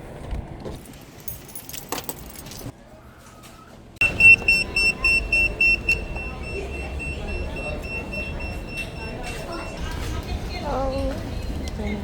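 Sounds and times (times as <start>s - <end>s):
rapid electronic beeping: 4.0s - 9.7s.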